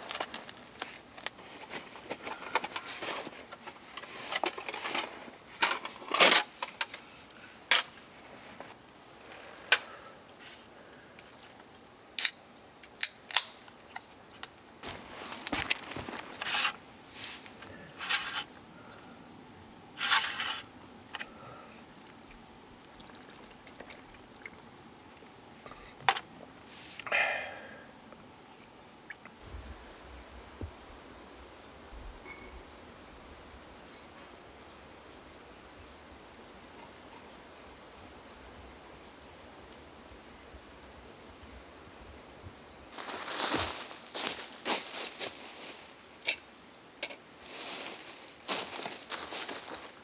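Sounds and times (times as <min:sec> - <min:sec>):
objects being handled: 0:00.0 - 0:08.8, 0:14.8 - 0:18.5, 0:43.0 - 0:50.0.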